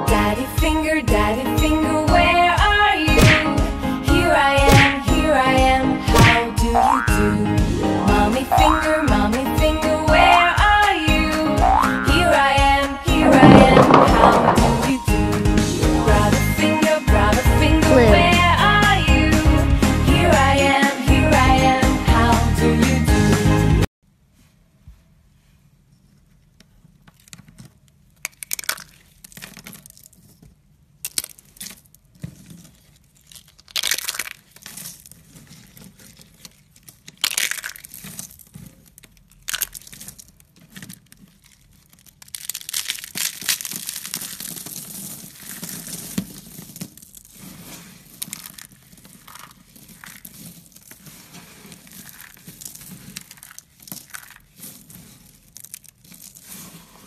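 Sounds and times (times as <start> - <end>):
objects rustling and crinkling: 13.1 - 15.1, 24.3 - 57.0.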